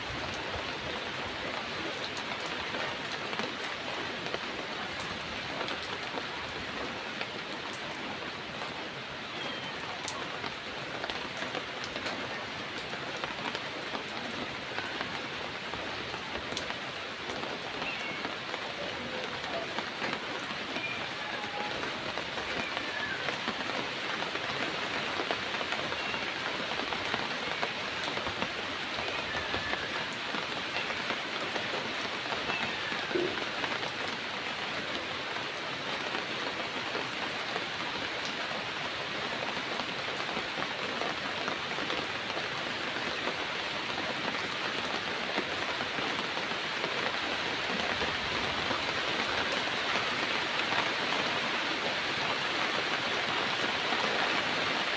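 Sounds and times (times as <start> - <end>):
heavy rain falling: 0.0 - 54.9.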